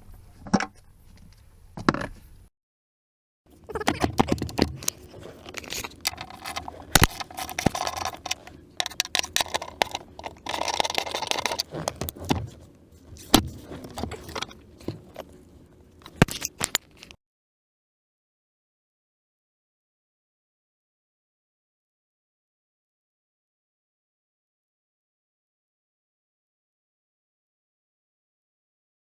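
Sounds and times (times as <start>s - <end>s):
metallic clinks and scraping: 3.5s - 17.2s.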